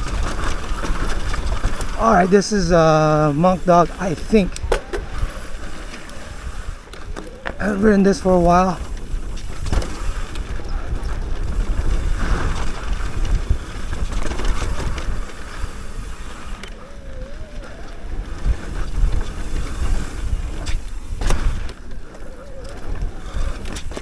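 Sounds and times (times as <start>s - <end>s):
bike knocking over bumps: 0.0s - 2.0s, 8.7s - 16.8s, 18.1s - 24.0s
tyres rumbling over dirt: 0.0s - 24.0s
wind buffeting microphone: 0.0s - 24.0s.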